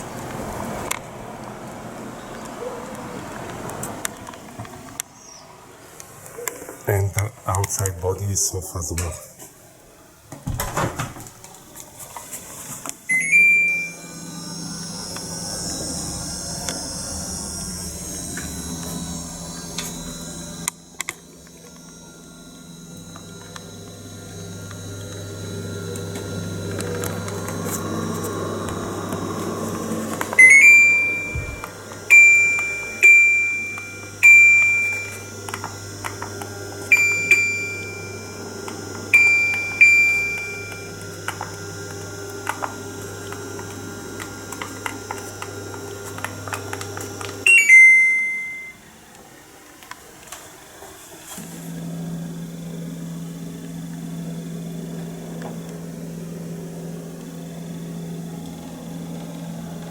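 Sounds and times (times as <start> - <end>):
air conditioner hum: 0.0 - 59.9
short high beeps: 13.1 - 14.0, 30.4 - 35.2, 47.5 - 48.8
lower hum: 13.8 - 38.5.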